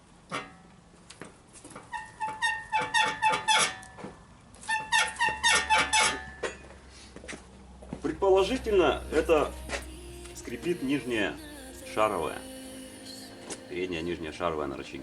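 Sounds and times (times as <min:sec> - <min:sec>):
suspension squeaking metallically: 0:01.8 - 0:06.7, 0:08.0 - 0:15.0.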